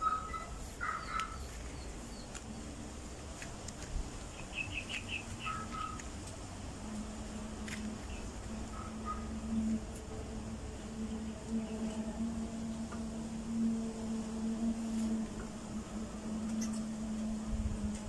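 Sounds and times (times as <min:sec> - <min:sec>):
birds chirping: 0:00.0 - 0:02.8, 0:04.2 - 0:06.2, 0:07.6 - 0:13.0, 0:16.5 - 0:17.2.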